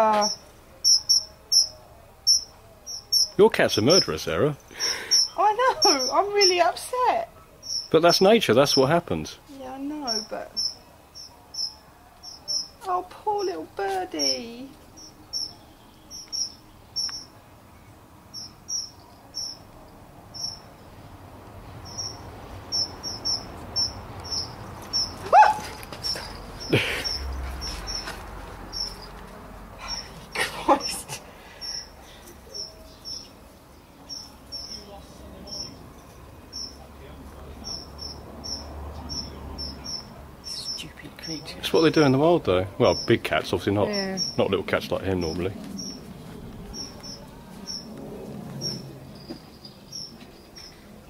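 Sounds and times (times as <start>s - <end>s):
small bird squeaking: 0.1s - 4.0s, 4.8s - 6.8s, 7.6s - 8.0s, 10.0s - 12.8s, 15.0s - 17.4s, 18.3s - 19.6s, 20.4s - 20.7s, 21.8s - 28.1s, 28.7s - 29.1s.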